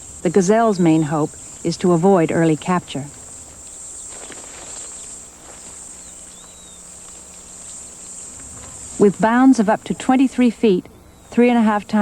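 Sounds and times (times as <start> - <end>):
insects chirring: 0.0 - 12.0
faint rustling: 1.2 - 9.2.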